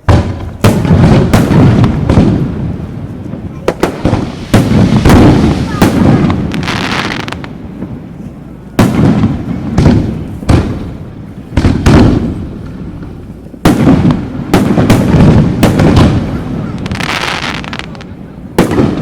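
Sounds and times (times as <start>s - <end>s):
fireworks booming: 0.0s - 19.0s
fireworks crackling: 0.0s - 19.0s.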